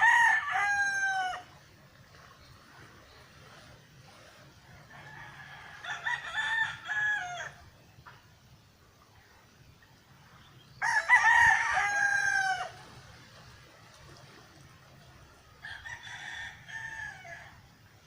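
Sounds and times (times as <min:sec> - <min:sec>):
rooster crowing: 0:00.0 - 0:01.5, 0:04.9 - 0:07.6, 0:10.8 - 0:12.8, 0:15.6 - 0:17.6.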